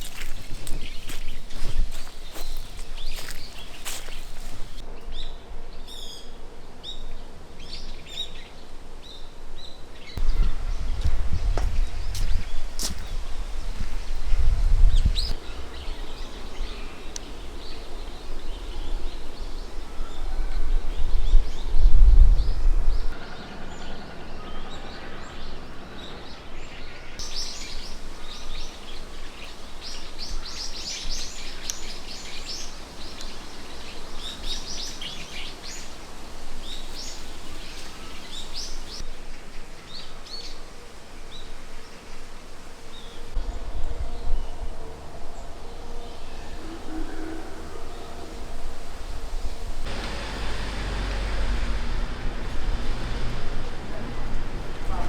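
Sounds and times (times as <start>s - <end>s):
small birds chirping: 0.0s - 5.2s, 7.6s - 21.8s, 26.0s - 40.6s
low rumble: 49.4s - 55.0s.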